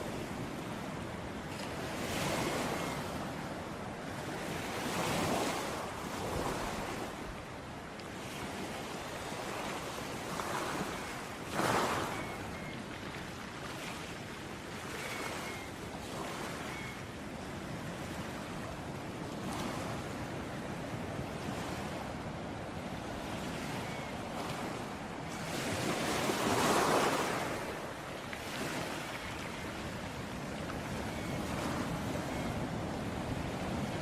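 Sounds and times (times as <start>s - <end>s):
ocean surf washing ashore: 17.8s - 34.0s.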